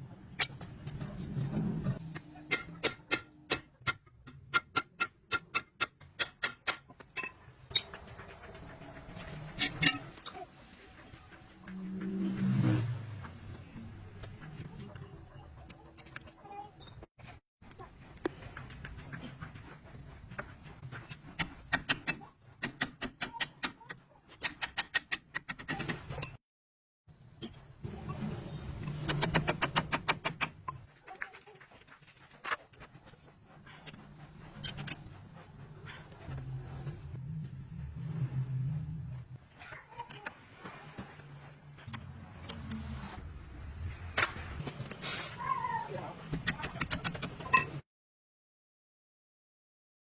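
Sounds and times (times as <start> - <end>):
hammer striking steel: 2.5 - 7.4.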